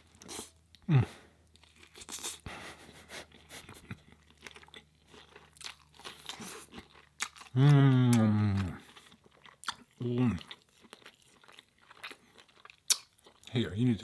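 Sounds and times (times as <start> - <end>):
close chewing and crunching: 0.0 - 2.5, 3.2 - 14.0
person humming mmm: 0.8 - 1.3, 7.5 - 8.8.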